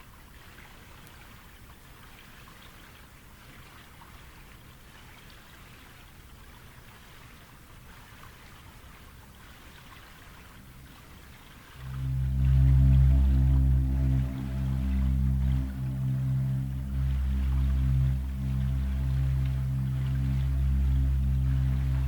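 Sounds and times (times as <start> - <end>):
water trickling and pattering: 9.9 - 22.0.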